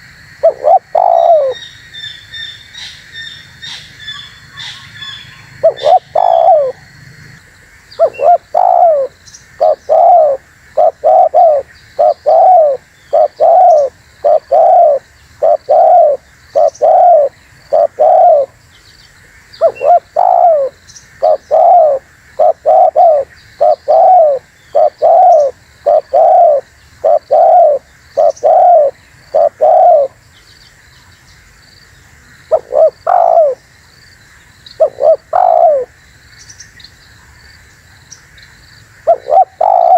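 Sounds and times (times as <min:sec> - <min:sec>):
dove cooing: 0:00.4 - 0:01.6, 0:03.6 - 0:07.4, 0:08.0 - 0:18.6, 0:19.6 - 0:30.2, 0:32.5 - 0:33.6, 0:34.8 - 0:35.9, 0:39.0 - 0:39.9.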